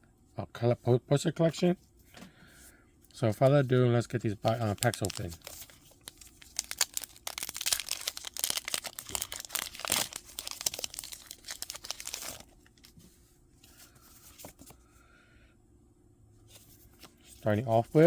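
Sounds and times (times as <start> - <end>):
foil wrapper tearing and crinkling: 4.4 - 12.9
faint handling noise: 11.6 - 14.8, 16.4 - 18.0.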